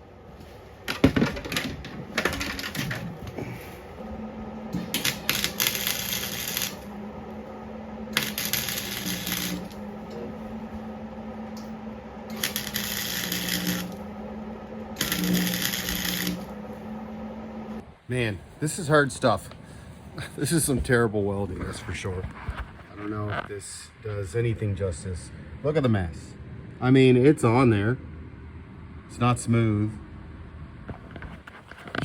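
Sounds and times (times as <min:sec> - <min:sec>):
steady low hum: 0:00.0 - 0:32.0
electric welder crackling: 0:00.8 - 0:17.8.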